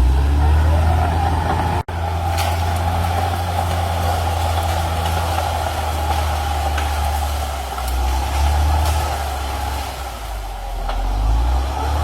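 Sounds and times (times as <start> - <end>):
bulldozer diesel engine running: 0.0 - 12.0.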